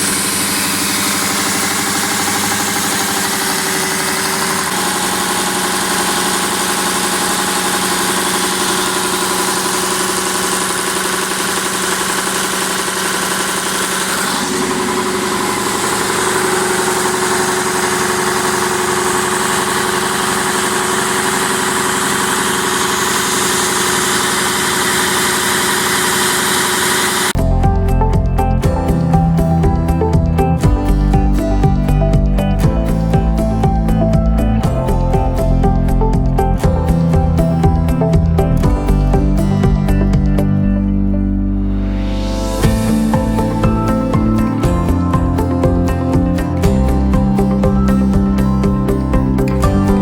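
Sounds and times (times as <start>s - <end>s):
diesel engine running: 0.0s - 50.0s
music: 27.4s - 50.0s.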